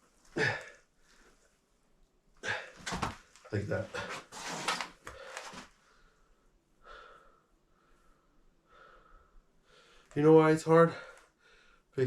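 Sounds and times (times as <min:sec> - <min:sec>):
man breathing hard: 0:05.0 - 0:10.1.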